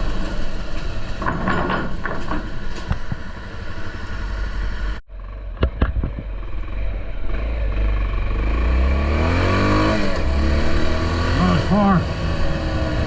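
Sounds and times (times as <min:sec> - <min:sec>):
motorcycle engine running: 0:04.2 - 0:08.9.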